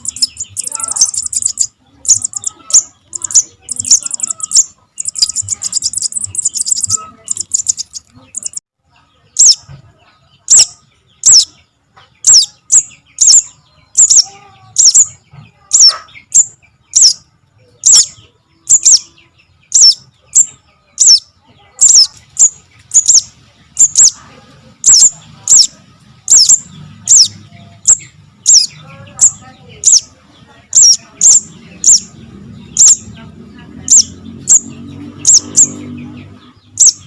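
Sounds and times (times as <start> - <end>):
bird calling high chips: 0.0 - 8.6, 24.8 - 30.1.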